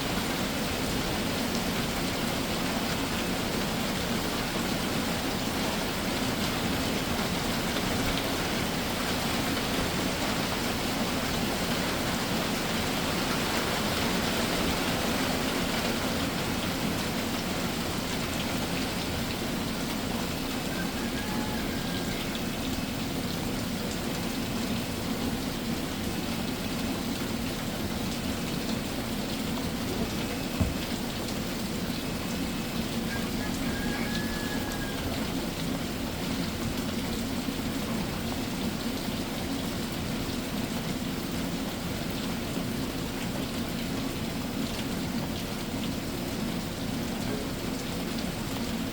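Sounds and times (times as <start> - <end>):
rain shower falling: 0.0 - 48.9.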